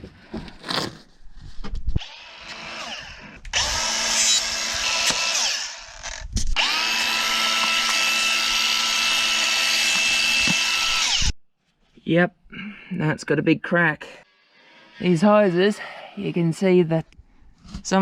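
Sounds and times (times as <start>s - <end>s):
power drill running: 2.0s - 11.4s.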